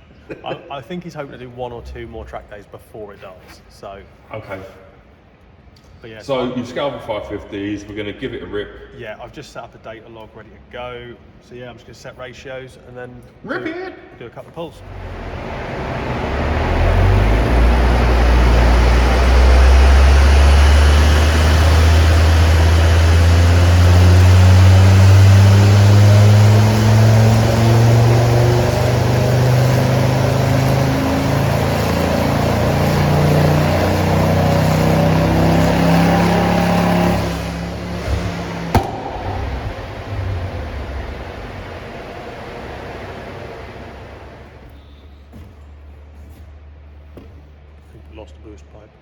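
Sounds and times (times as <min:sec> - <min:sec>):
engine revving at full throttle: 0:14.8 - 0:44.7.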